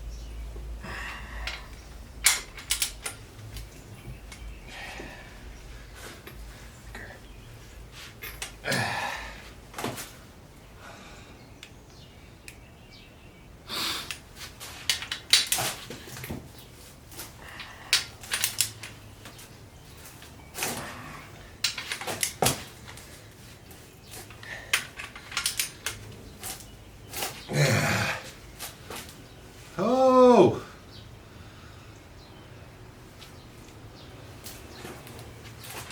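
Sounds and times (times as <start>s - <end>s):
hand tools clanking on metal: 1.0s - 5.1s, 14.0s - 16.4s, 20.5s - 23.2s, 24.0s - 27.7s.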